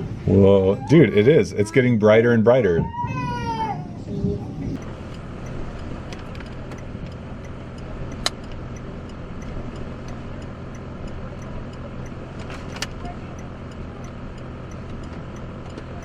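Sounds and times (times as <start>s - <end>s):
vehicle engine humming: 0.0s - 16.0s
faint ticks: 4.8s - 16.0s
sharp click: 5.8s - 8.6s.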